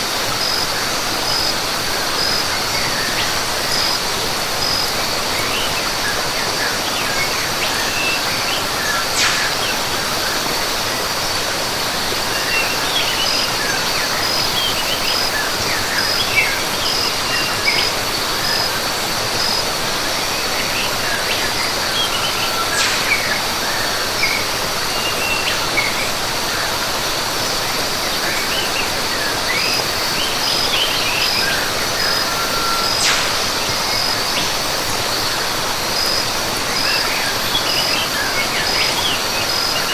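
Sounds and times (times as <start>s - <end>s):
rush of falling water: 0.0s - 39.9s
birds chirping: 4.6s - 10.8s, 19.3s - 26.6s, 28.3s - 36.2s
high insect trill: 8.8s - 11.2s, 21.4s - 25.4s, 29.5s - 35.3s.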